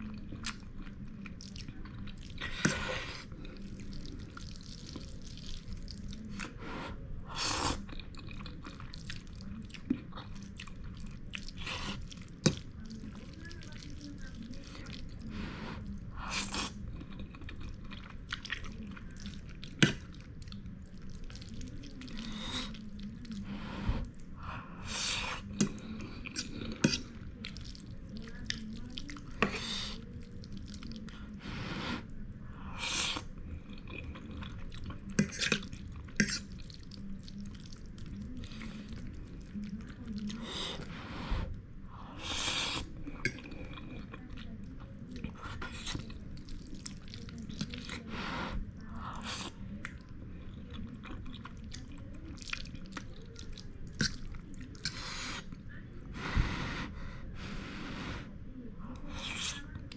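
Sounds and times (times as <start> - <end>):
person slurping noodles: 7.3 - 7.8, 42.2 - 42.9.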